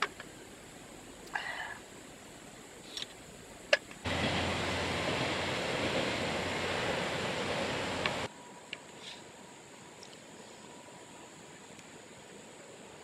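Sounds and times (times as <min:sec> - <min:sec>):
rushing hiss: 0:00.0 - 0:08.3.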